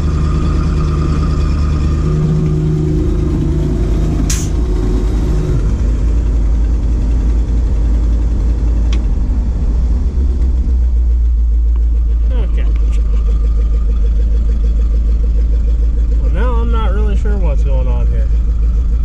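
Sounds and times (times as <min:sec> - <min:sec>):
humming tone: 0:00.0 - 0:05.9
truck engine running: 0:00.0 - 0:19.0
sharp click: 0:04.3 - 0:04.6.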